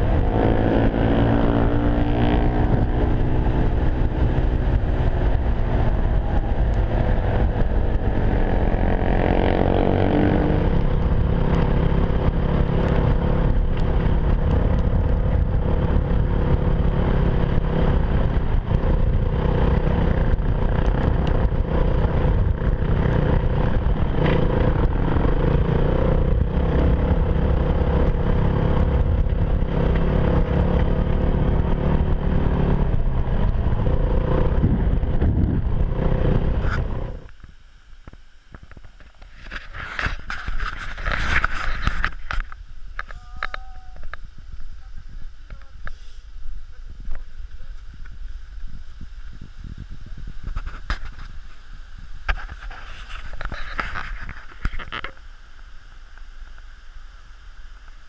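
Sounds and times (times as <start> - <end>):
motorcycle engine revving: 0.0 - 37.4
low rumble: 0.0 - 55.3.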